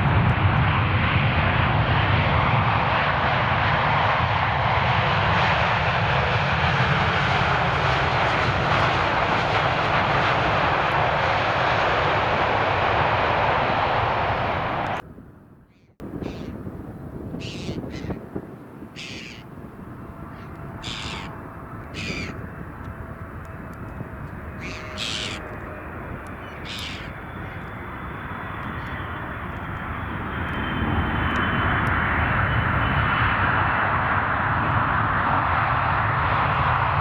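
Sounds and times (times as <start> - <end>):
aircraft engines roaring: 0.0 - 37.0
bird cawing: 15.7 - 16.6, 17.4 - 18.2, 19.0 - 19.5, 20.3 - 22.5, 24.6 - 25.5, 26.3 - 27.7.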